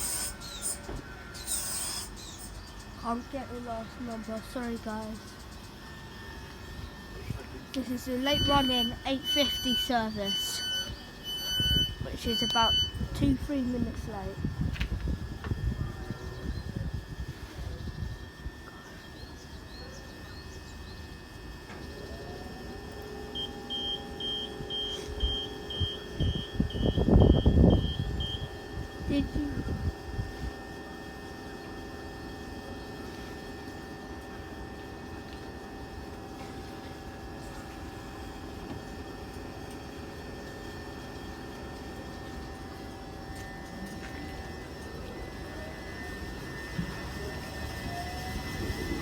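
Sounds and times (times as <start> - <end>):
birds chirping: 0.0 - 13.0
electric train whine: 0.0 - 49.0
door warning beeps: 8.1 - 13.4, 23.3 - 28.6.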